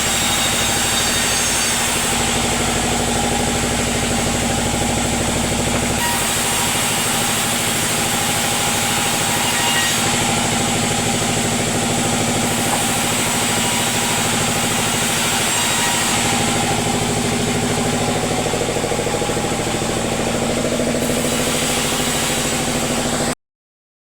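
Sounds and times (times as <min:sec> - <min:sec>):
sawmill engine running: 0:00.0 - 0:23.4.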